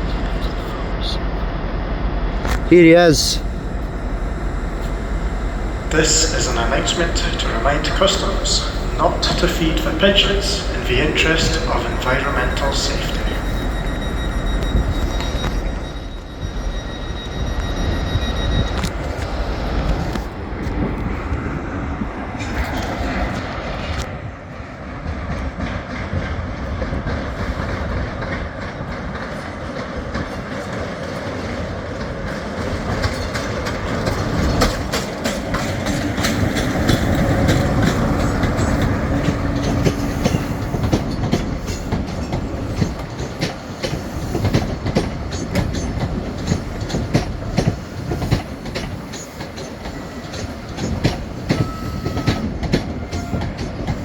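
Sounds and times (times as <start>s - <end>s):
diesel locomotive engine rumbling: 0.0s - 54.0s
wheels clicking over rail joints: 25.3s - 54.0s.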